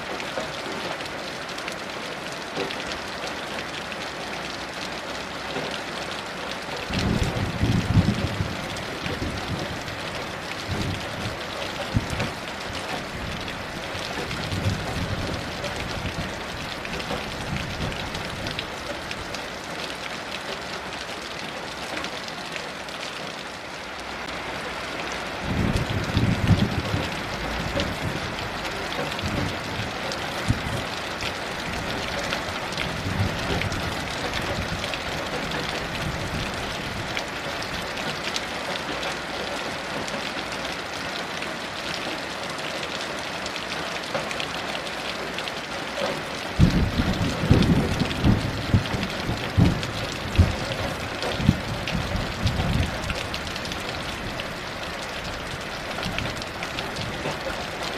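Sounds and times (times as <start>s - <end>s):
heavy rain falling: 0.0s - 57.9s
distant thunder rumbling: 6.9s - 18.7s, 25.4s - 37.1s, 46.6s - 54.7s.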